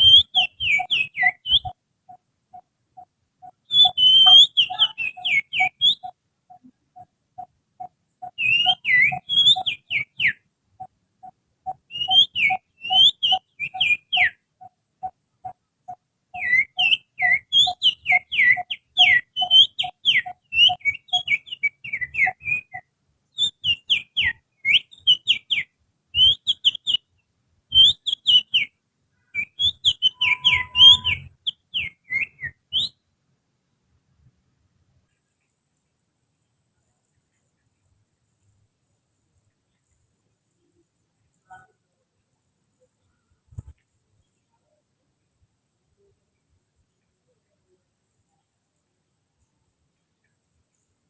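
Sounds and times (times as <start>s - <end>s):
finger whistling bird song: 0.0s - 1.8s, 3.6s - 6.1s, 8.2s - 10.4s, 11.9s - 14.4s, 16.4s - 27.0s, 27.7s - 28.7s, 29.4s - 33.0s
low repeating peep: 30.1s - 31.3s.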